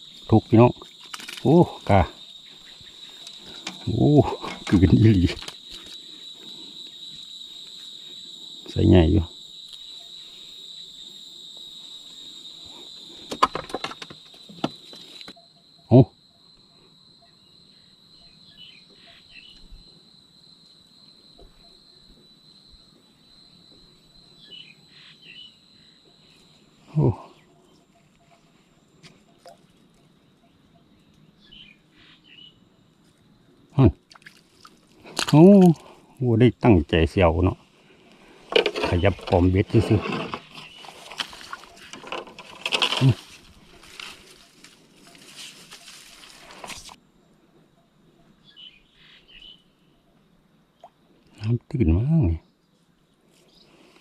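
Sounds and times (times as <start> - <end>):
insects trilling: 0.0 - 54.0
bird chirping: 2.2 - 6.3, 14.8 - 19.7, 24.2 - 26.4, 30.0 - 32.7, 47.6 - 50.2.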